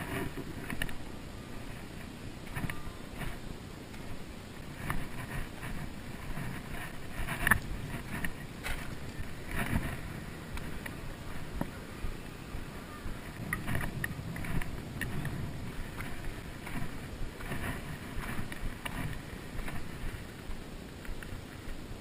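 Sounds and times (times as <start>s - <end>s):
light clicks and ticks: 0.0s - 1.0s, 1.7s - 21.9s
wind buffeting microphone: 0.0s - 22.0s.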